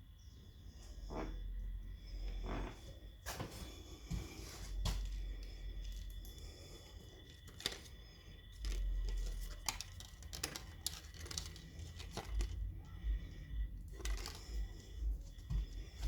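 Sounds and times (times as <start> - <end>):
handling clicks and crinkling: 7.2 - 13.0, 13.8 - 16.0
dull low thumps: 12.6 - 16.0.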